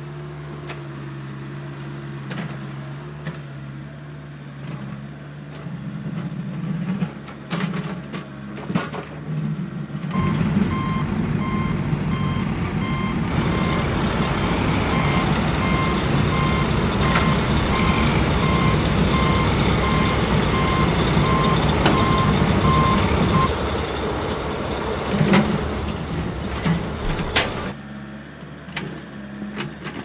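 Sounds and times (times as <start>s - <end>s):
diesel engine running: 10.2s - 23.5s
reverse alarm beeping: 10.2s - 23.5s.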